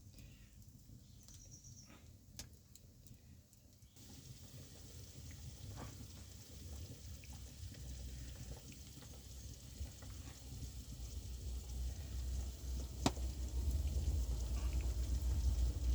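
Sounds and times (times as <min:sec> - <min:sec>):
wood fire crackling and hissing: 0:00.0 - 0:15.9
sharp pops of fire: 0:13.0 - 0:13.3.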